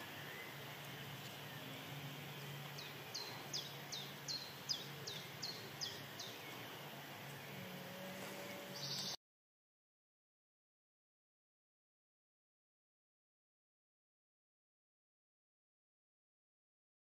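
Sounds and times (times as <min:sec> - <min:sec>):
small bird singing: 0:00.0 - 0:07.7, 0:08.3 - 0:09.2
low background hum: 0:00.0 - 0:09.2.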